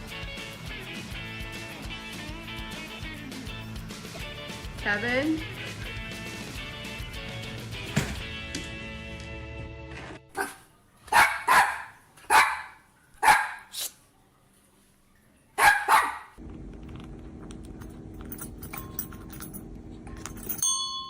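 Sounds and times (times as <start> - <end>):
dog barking: 10.3 - 13.8, 15.6 - 16.4
steady low hum: 16.4 - 21.0.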